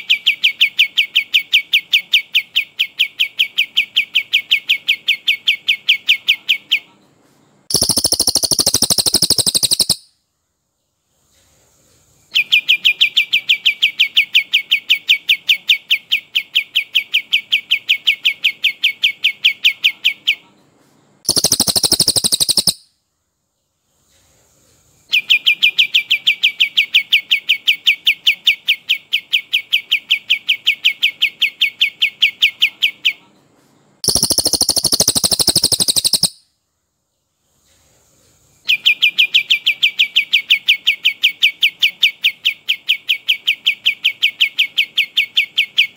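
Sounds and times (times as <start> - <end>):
bird rolling trill: 7.7 - 10.0, 21.3 - 22.8, 34.0 - 36.4
high-pitched birdsong burst: 7.7 - 10.1, 21.3 - 22.8, 34.0 - 36.5.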